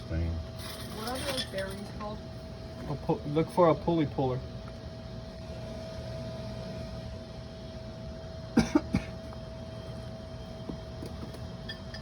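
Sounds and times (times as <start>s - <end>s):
steady hum: 0.0s - 12.0s
person coughing: 8.6s - 9.2s.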